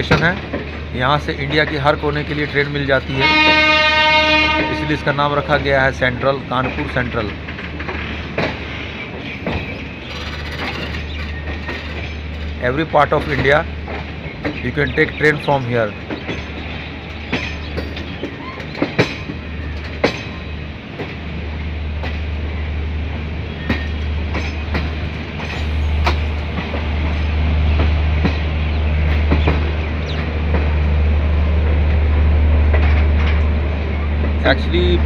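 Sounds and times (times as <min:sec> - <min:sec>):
train wheel and rail noise: 0:00.0 - 0:35.0
wheels clacking over rail joints: 0:00.0 - 0:35.0
low rumble: 0:33.9 - 0:35.0.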